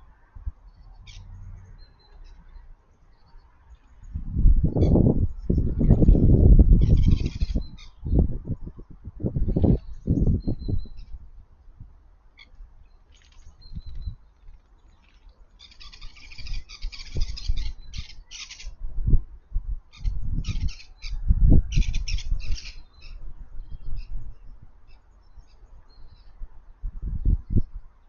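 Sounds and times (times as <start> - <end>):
small birds chattering and squawking: 0.7 - 8.8, 12.3 - 18.8, 19.9 - 26.4.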